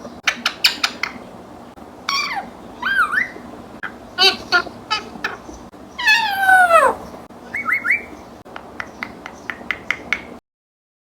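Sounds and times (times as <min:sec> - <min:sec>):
parrot whistle-like call: 0:02.1 - 0:03.4, 0:06.0 - 0:07.0
parrot chirps: 0:02.1 - 0:08.2.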